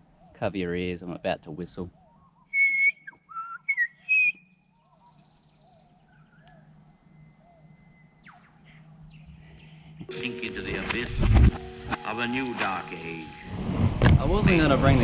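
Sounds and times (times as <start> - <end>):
birds calling softly: 0.0 - 13.6
high bird trill: 1.8 - 13.6.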